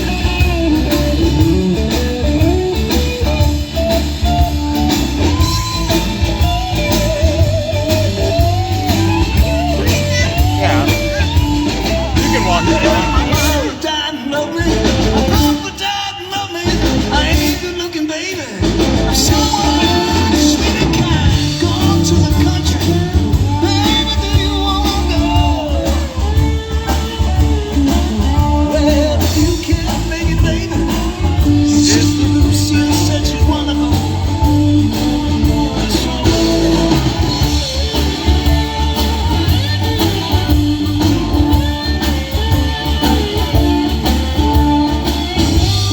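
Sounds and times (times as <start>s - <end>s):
live rock band playing: 0.0s - 45.9s
person singing: 9.3s - 26.6s, 27.2s - 45.9s.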